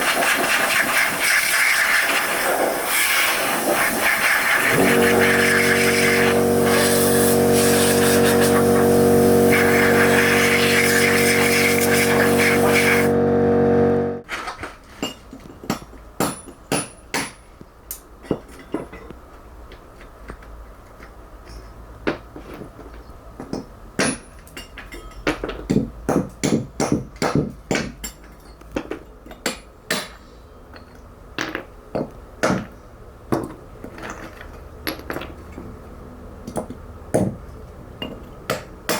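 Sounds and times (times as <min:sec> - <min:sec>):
power tool running: 0:04.6 - 0:14.2.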